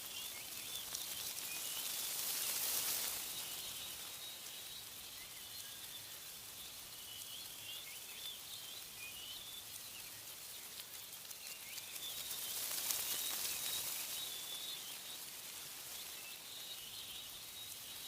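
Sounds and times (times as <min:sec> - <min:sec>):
small birds chirping: 0:00.0 - 0:18.0
wind rustling tree leaves: 0:00.0 - 0:18.0.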